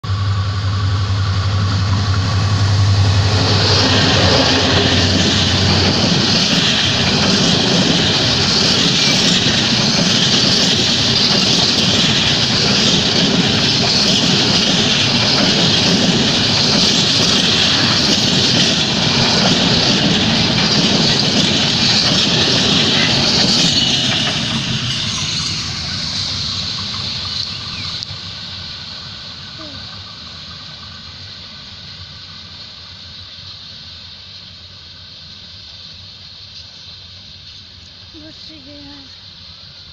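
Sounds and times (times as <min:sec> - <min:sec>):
train wheels clattering: 0:00.0 - 0:33.7.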